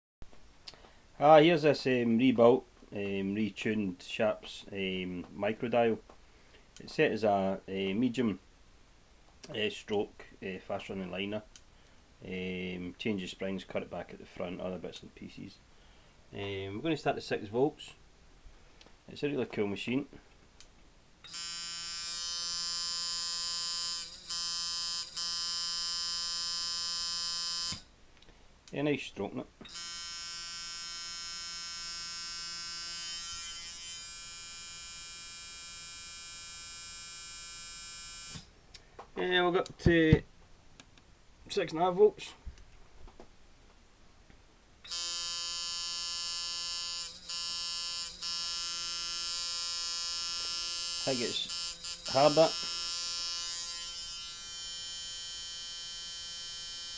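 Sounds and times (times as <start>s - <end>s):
tattoo machine buzzing: 21.3s - 27.9s, 29.7s - 38.5s, 44.9s - 56.9s.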